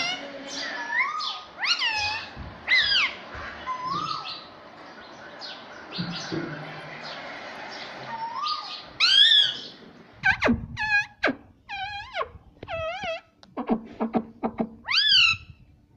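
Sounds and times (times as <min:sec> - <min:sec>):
parrot squawking: 0:00.0 - 0:04.5, 0:08.0 - 0:14.2, 0:14.8 - 0:15.5.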